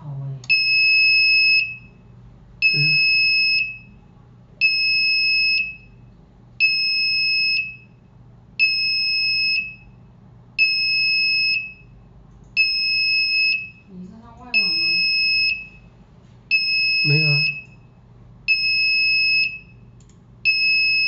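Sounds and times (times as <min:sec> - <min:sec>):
high electronic beep: 0:02.6 - 0:03.8, 0:16.6 - 0:17.7.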